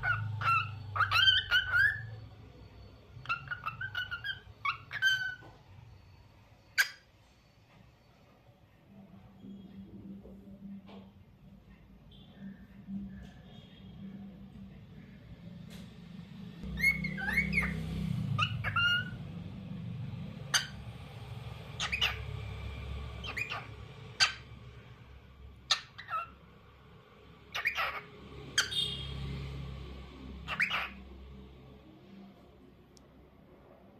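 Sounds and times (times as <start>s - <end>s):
cockatiel chirping and whistling: 0.0s - 2.2s, 3.2s - 5.5s, 6.8s - 7.0s, 16.8s - 17.8s, 18.4s - 19.2s, 20.5s - 20.8s, 21.8s - 22.2s, 23.2s - 24.4s, 25.7s - 26.3s, 27.5s - 28.0s, 30.5s - 31.0s.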